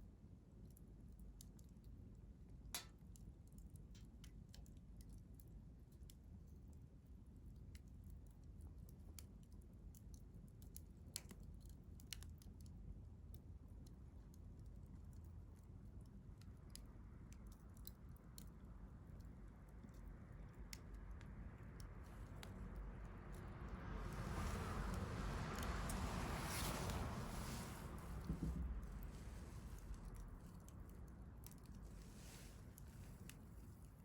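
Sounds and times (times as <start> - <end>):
soft hiss: 22.2 - 33.8
campfire crackling and popping: 23.8 - 32.4.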